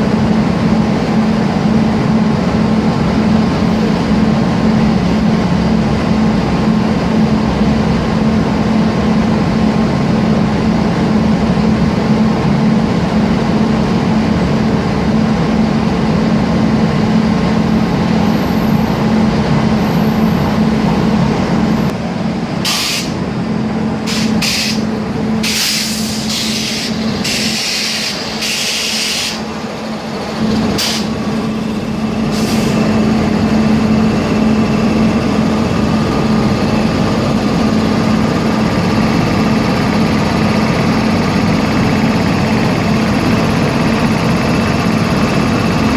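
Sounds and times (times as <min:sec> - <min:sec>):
steady machine hum: 0:00.0 - 0:45.9
short hissing bursts: 0:22.6 - 0:23.2, 0:24.1 - 0:29.5.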